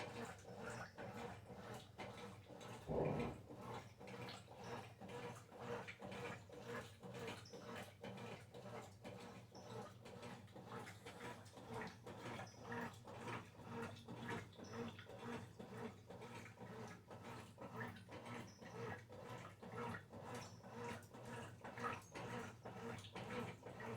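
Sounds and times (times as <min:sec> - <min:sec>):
washing machine motor hum: 0:02.9 - 0:03.5
water swishing strokes: 0:02.9 - 0:03.5.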